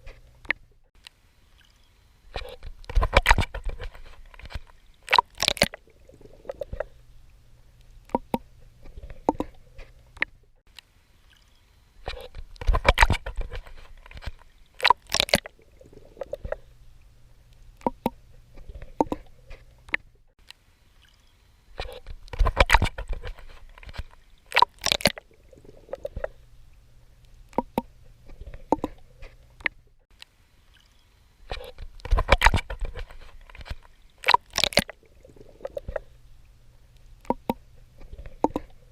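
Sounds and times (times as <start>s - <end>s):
water splashing from swimming: 1.6s - 10.3s, 11.3s - 20.0s, 21.0s - 29.8s, 30.7s - 36.2s, 37.0s - 38.9s
water dripping: 7.8s - 8.5s, 12.3s - 18.2s, 22.2s - 28.0s, 31.8s - 38.8s.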